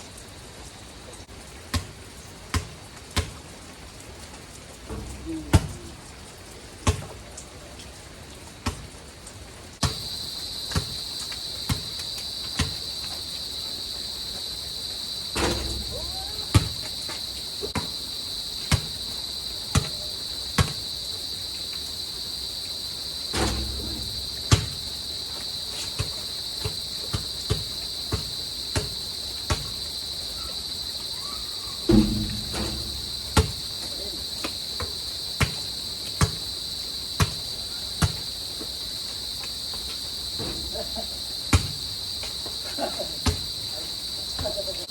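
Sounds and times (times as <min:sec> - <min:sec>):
basketball bouncing on court: 0:04.9 - 0:05.8, 0:06.8 - 0:07.1, 0:09.8 - 0:10.1, 0:11.7 - 0:12.0, 0:15.6 - 0:16.9, 0:17.7 - 0:17.9, 0:19.7 - 0:20.8, 0:23.5 - 0:24.9, 0:31.9 - 0:33.8
crickets chirping: 0:04.9 - 0:06.6, 0:09.8 - 0:44.9.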